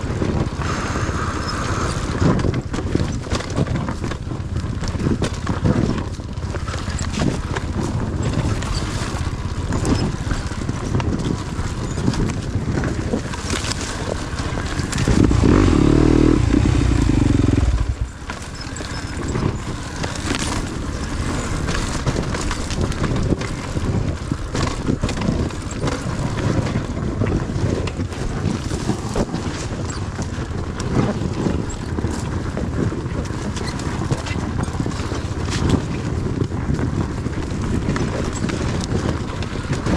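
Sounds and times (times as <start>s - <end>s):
dirt bike engine revving: 14.7s - 20.1s.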